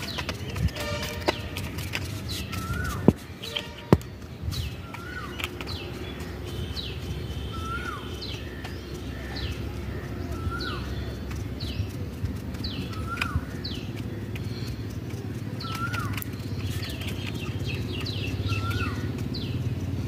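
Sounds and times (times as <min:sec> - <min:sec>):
bird whistling call: 0:02.4 - 0:04.0, 0:07.4 - 0:08.5.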